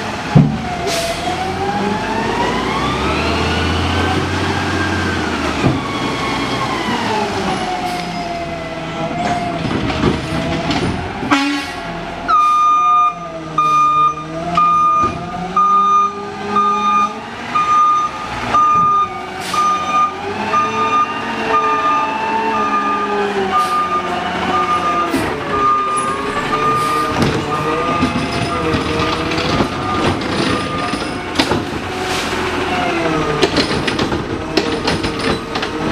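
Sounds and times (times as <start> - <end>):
garbage truck engine running: 0.0 - 35.9
truck reverse alarm beeping: 11.3 - 31.4.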